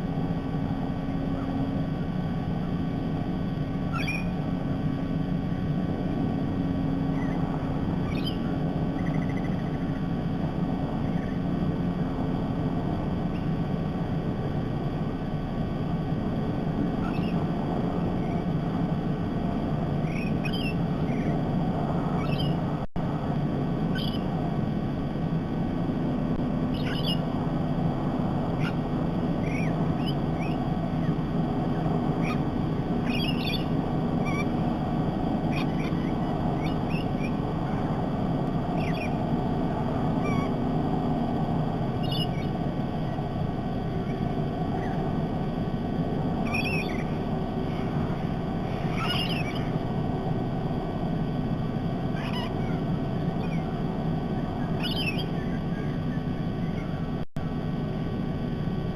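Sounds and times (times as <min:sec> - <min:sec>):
low outdoor rumble: 0:00.0 - 0:58.9
bird chirps: 0:03.9 - 0:04.5, 0:06.5 - 0:10.2, 0:10.9 - 0:11.6, 0:17.0 - 0:18.6, 0:19.9 - 0:22.8, 0:23.9 - 0:24.4, 0:26.7 - 0:27.4, 0:28.4 - 0:45.2, 0:46.3 - 0:50.2, 0:52.1 - 0:57.1.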